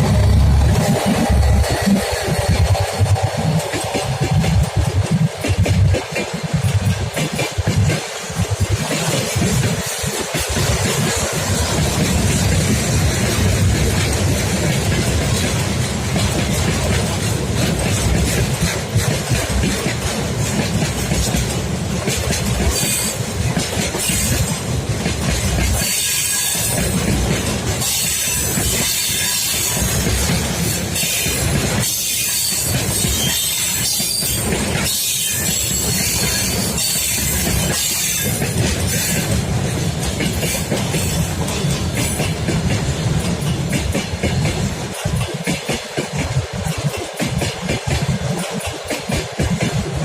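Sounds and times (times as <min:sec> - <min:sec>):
train wheels rumbling on rails: 0:00.0 - 0:50.0
high wheel squeal: 0:31.0 - 0:39.2.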